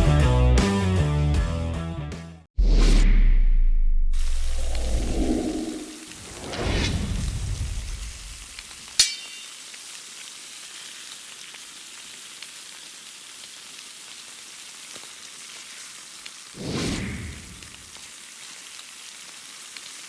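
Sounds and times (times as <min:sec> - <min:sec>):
whoosh: 0:02.6 - 0:08.5, 0:16.6 - 0:17.7
food sizzling on a grill: 0:06.0 - 0:20.0
sharp metallic clink: 0:09.0 - 0:09.6.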